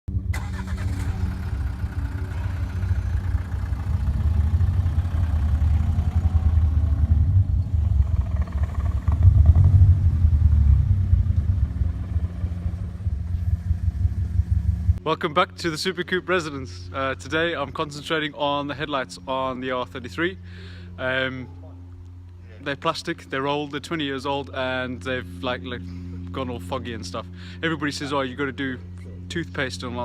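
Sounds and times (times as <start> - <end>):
car engine pulsing: 0.1 - 15.0.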